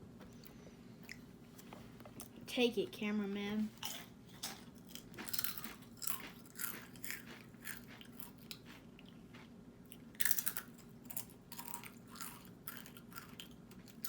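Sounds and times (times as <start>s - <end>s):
chewing crunchy chips: 3.7s - 14.0s.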